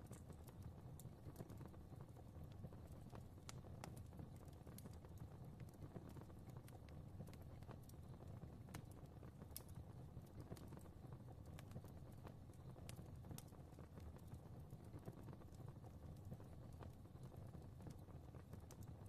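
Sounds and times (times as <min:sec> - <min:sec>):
fire crackling in a fireplace: 0:00.0 - 0:19.0
low rumble of flames: 0:00.0 - 0:19.0.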